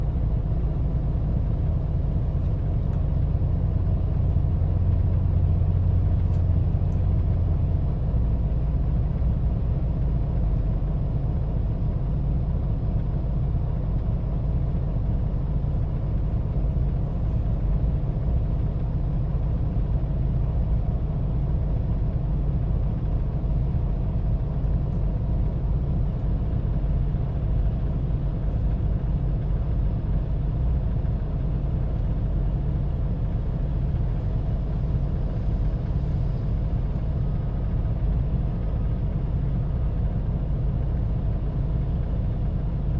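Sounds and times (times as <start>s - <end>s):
heavy diesel engines running: 0.0s - 42.9s.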